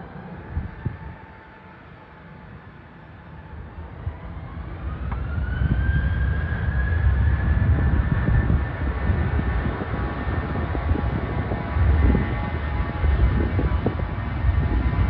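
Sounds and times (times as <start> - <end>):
jet engines spooling up: 0.0 - 15.0
low rumble: 4.0 - 15.0.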